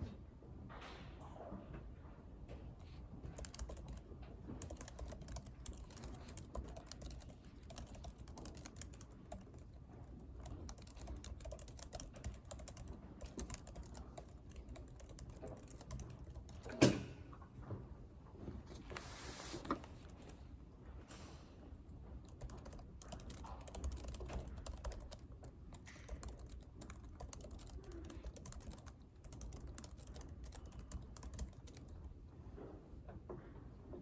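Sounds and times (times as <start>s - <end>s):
typing on computer keyboard: 3.2s - 17.0s, 22.2s - 32.1s.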